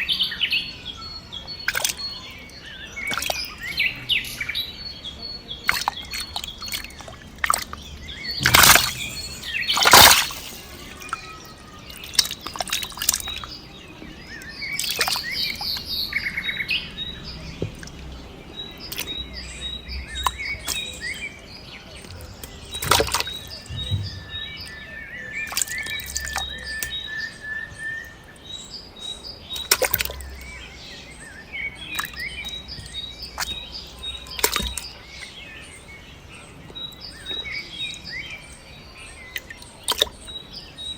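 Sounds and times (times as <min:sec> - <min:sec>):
small birds chirping: 0:00.0 - 0:40.9
loud sharp noises: 0:08.3 - 0:13.5.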